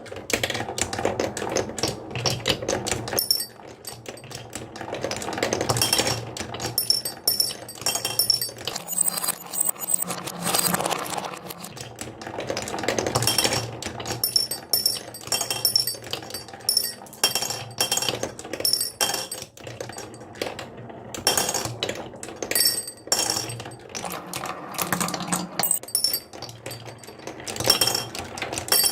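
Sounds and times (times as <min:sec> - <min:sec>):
marbles rolling on wood: 0:00.5 - 0:28.9
marbles clicking and clinking: 0:03.2 - 0:04.4, 0:05.0 - 0:11.7, 0:13.0 - 0:20.2, 0:21.2 - 0:28.9.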